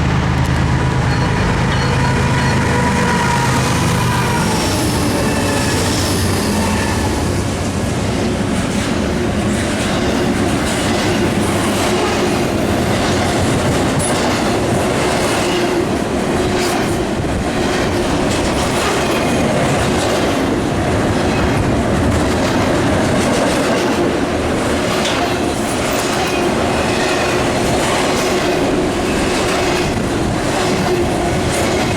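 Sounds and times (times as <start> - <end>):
high wheel squeals: 1.0 - 7.4
train wheels clicking over rail joints: 3.8 - 31.9.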